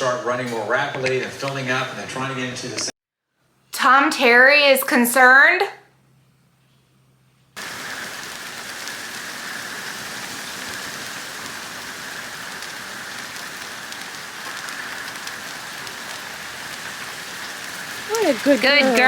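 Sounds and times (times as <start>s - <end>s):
heavy rain falling: 7.6s - 19.0s.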